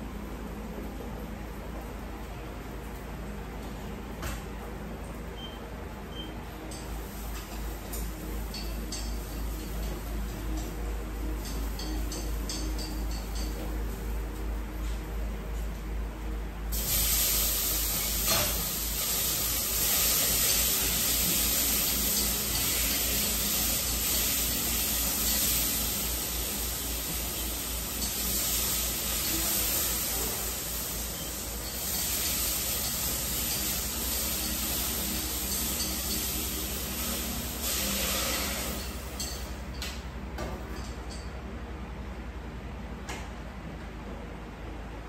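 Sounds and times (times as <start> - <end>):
stir-fry sizzling in hot oil: 16.7 - 39.5.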